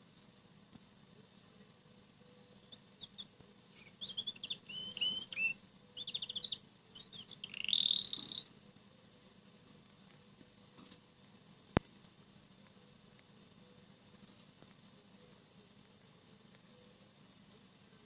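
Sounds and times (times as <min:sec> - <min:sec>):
canary chirping and trilling: 0:02.2 - 0:08.6.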